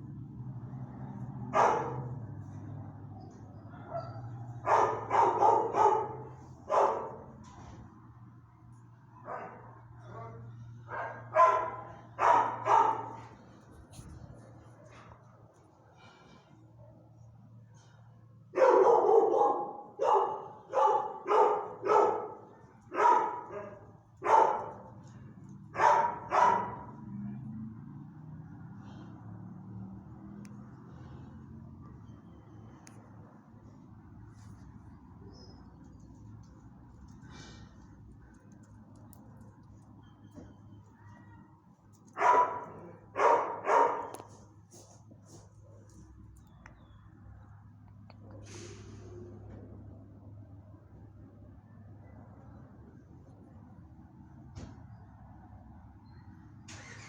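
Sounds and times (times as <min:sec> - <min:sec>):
dog barking: 0:01.5 - 0:02.2, 0:03.7 - 0:07.3, 0:09.2 - 0:13.4, 0:18.5 - 0:25.0, 0:25.7 - 0:27.0, 0:42.2 - 0:44.3.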